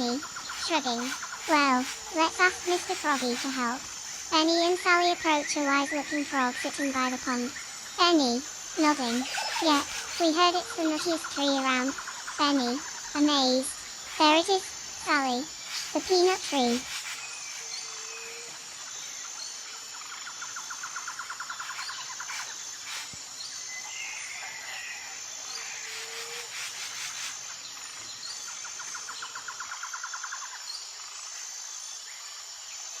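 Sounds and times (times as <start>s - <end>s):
insects chirring: 0.0s - 33.0s
bird calls: 20.0s - 30.6s.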